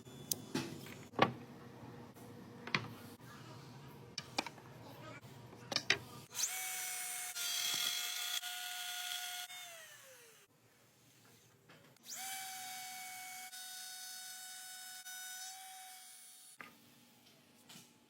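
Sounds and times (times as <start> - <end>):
power tool cutting wood: 6.4 - 10.5, 12.0 - 16.6.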